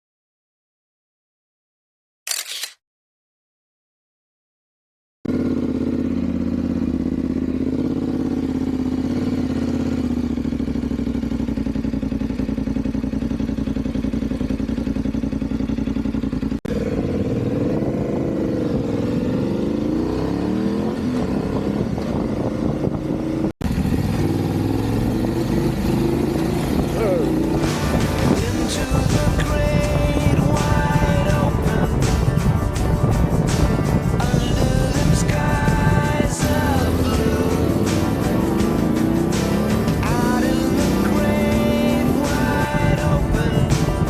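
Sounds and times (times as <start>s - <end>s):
motorcycle engine: 5.3s - 44.0s.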